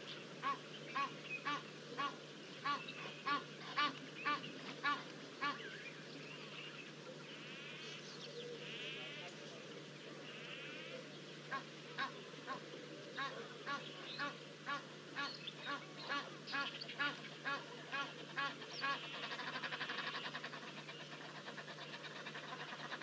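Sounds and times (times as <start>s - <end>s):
bird honking calls: 13.2s - 23.0s.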